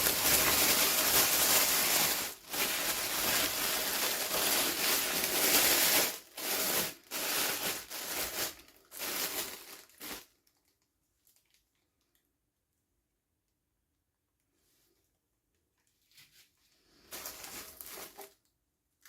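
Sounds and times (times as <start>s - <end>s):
plastic packaging crinkling and tearing: 0.0s - 12.2s, 17.0s - 18.5s.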